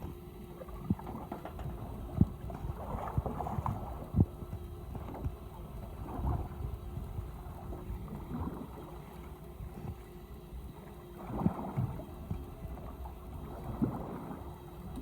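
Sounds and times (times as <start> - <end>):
water sloshing against boat hull: 0.0 - 15.0
wind on microphone: 1.7 - 8.7.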